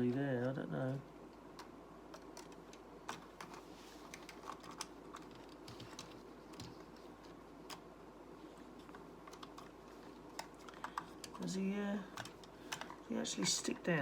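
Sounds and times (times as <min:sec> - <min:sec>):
low background hiss: 0:00.0 - 0:14.0.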